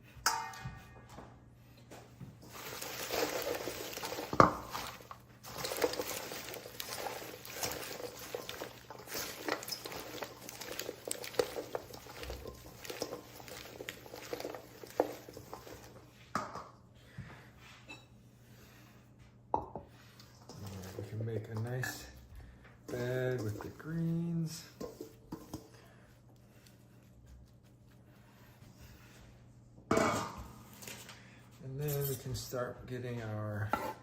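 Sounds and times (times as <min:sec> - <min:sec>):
wet rustling of lettuce leaves: 0:02.4 - 0:16.0, 0:20.4 - 0:21.2.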